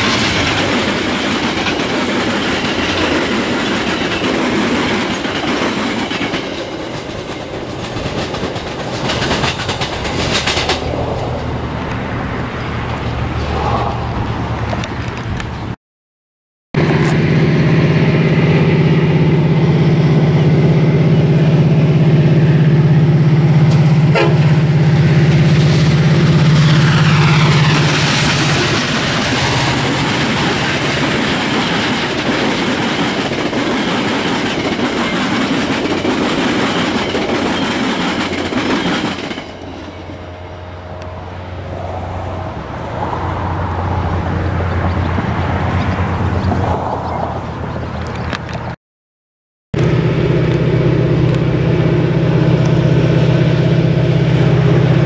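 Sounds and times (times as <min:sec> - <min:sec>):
wheels clicking over rail joints: 0:00.0 - 0:13.2, 0:25.3 - 0:40.1
diesel locomotive engine droning: 0:00.0 - 0:15.8, 0:16.8 - 0:48.8, 0:49.8 - 0:55.0
passenger cars rolling: 0:00.0 - 0:15.8, 0:16.8 - 0:48.8.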